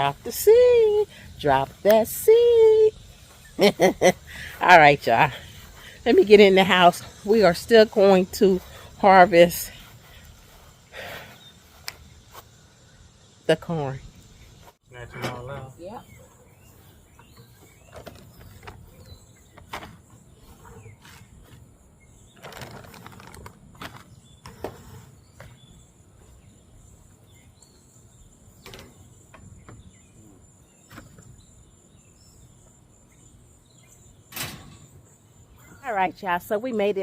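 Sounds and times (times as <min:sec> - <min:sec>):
high insect trill: 0:00.0 - 0:37.0.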